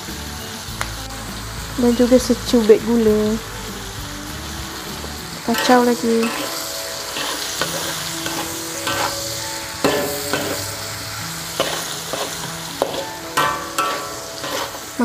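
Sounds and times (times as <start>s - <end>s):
vegetables sizzling in oil: 0.0s - 15.0s
metal spatula scraping a wok: 5.5s - 15.0s.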